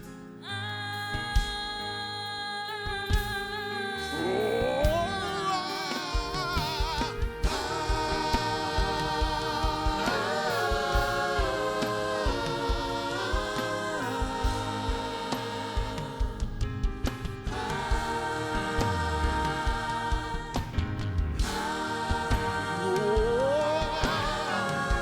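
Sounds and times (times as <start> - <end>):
voices singing: 2.8 - 25.0
band with steady low beat: 6.0 - 25.0.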